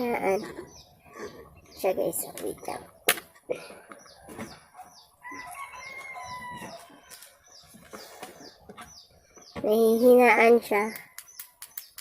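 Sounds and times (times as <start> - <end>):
rooster crowing: 5.2 - 7.2.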